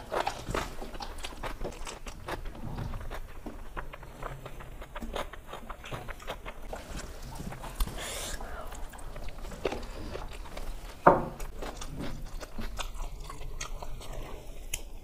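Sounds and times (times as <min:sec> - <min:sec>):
chewing with mouth clicks: 0:00.0 - 0:15.0.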